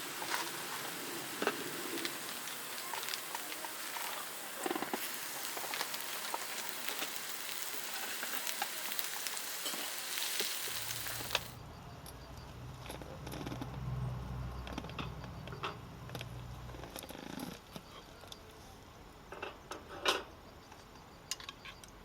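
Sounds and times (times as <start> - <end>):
food sizzling in a pan: 0.0 - 11.6
wood fire crackling: 0.0 - 11.6.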